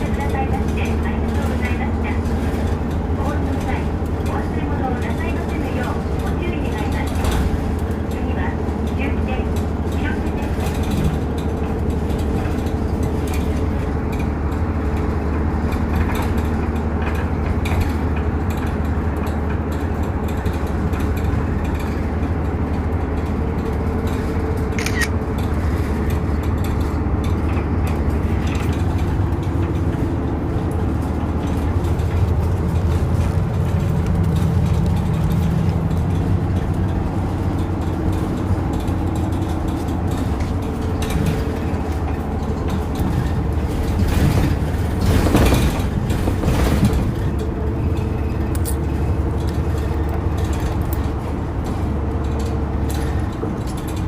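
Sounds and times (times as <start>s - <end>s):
bus engine humming: 0.0s - 54.0s.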